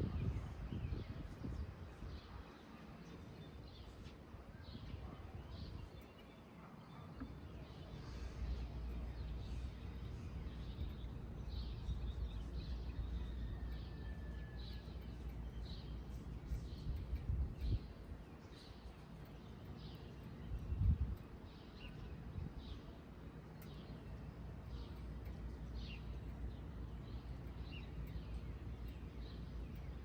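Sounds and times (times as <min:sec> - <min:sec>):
birds chirping: 0:01.0 - 0:30.0.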